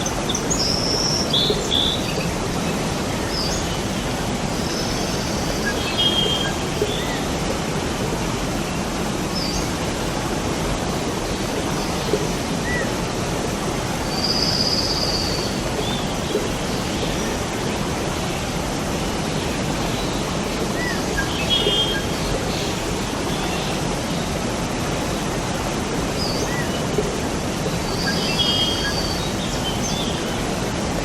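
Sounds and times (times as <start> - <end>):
waterfall rushing: 0.0 - 31.0
bird song: 4.6 - 7.2, 27.8 - 30.3.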